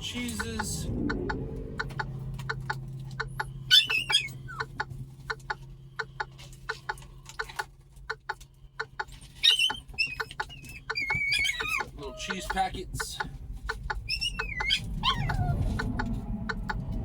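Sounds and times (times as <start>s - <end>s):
low hum: 0.0s - 17.0s
quick irregular clicks: 0.4s - 15.0s
bird squawking: 1.8s - 7.7s, 8.8s - 16.8s.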